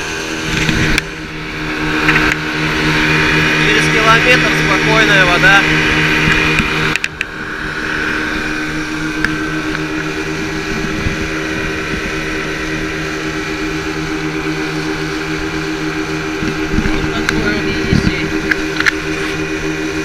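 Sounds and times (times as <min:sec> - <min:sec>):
motorboat engine running: 0:00.0 - 0:20.0.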